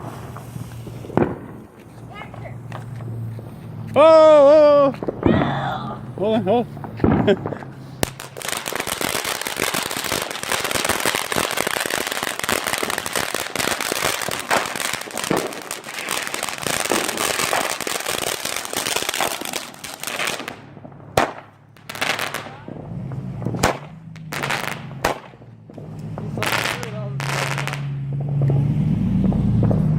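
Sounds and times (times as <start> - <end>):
loud firecracker pops: 0.0 - 2.0, 6.8 - 28.6
firecrackers crackling: 0.0 - 29.9.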